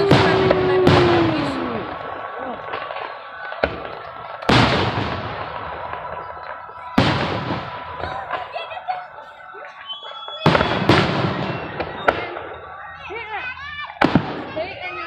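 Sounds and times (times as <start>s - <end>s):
firework bangs echoing: 0.0s - 15.0s.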